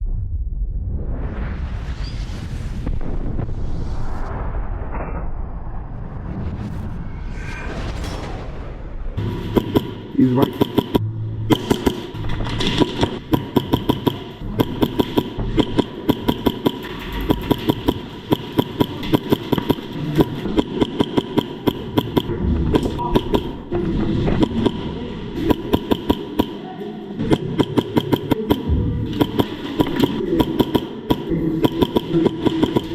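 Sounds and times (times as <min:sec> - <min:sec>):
airsoft gunfire: 0:09.2 - 0:22.3, 0:24.4 - 0:26.6, 0:27.2 - 0:32.9.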